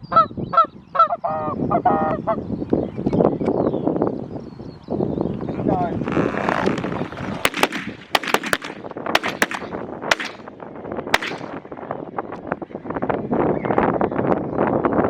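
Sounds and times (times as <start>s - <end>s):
shotgun shots: 7.4s - 10.5s, 11.1s - 11.6s.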